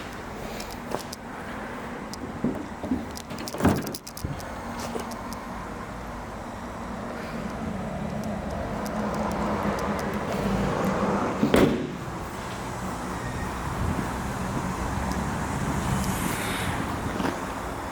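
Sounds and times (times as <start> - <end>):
loud thump: 11.4 - 12.2.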